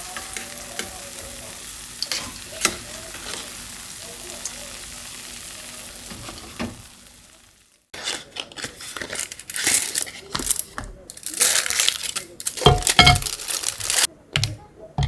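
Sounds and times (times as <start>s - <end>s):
packaging crinkling: 8.0s - 14.6s.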